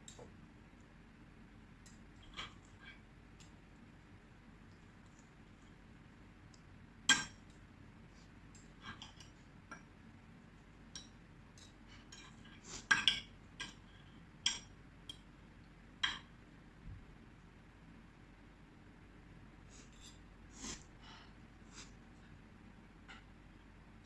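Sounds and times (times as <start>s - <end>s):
cutlery clinking against plate: 11.0s - 13.9s.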